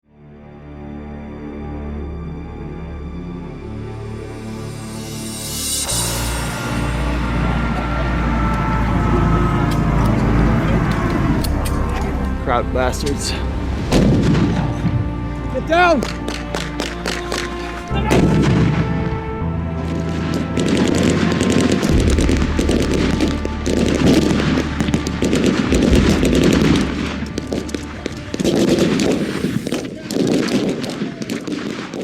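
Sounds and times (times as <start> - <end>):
background music with low notes: 0.1 - 29.9
rapid gunfire: 28.3 - 32.0.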